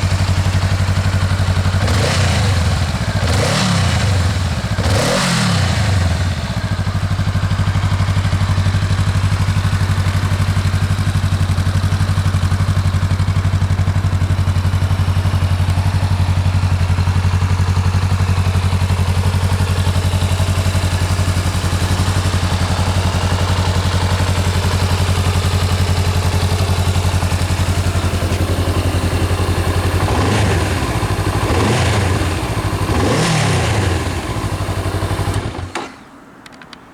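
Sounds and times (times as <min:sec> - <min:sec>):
motorcycle engine idling: 0:00.0 - 0:36.7
motorcycle throttle blips: 0:18.7 - 0:36.9.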